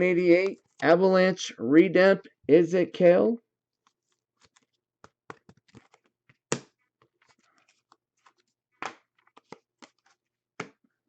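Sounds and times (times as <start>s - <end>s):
cards clicking and rustling: 3.8s - 10.8s.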